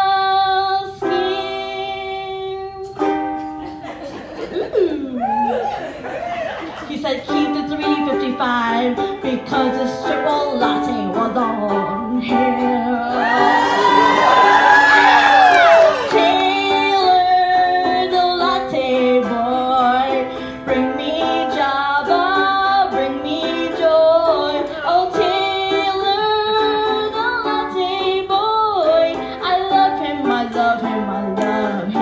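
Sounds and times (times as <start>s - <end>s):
woman singing: 0.0s - 3.4s, 6.8s - 32.0s
plucked string accompaniment: 0.0s - 5.2s, 6.2s - 32.0s.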